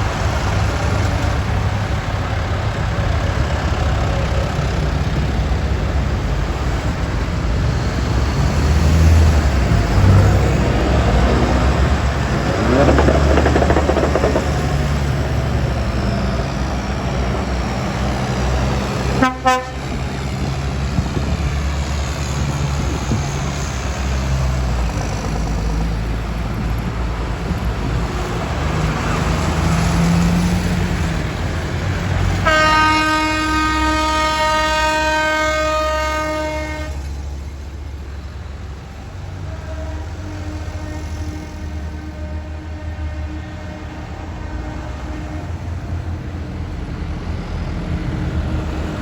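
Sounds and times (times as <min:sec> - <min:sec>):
tractor engines rumbling: 0:00.0 - 0:49.0
vehicle horn: 0:19.2 - 0:20.0, 0:32.4 - 0:37.1, 0:39.5 - 0:41.3.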